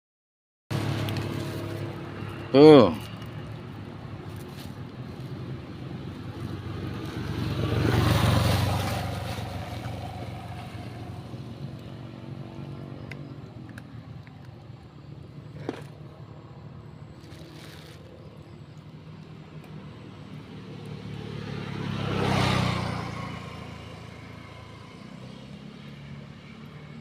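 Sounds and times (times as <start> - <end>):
traffic hum: 0.7 - 27.0
vehicle engine passing by: 0.7 - 27.0.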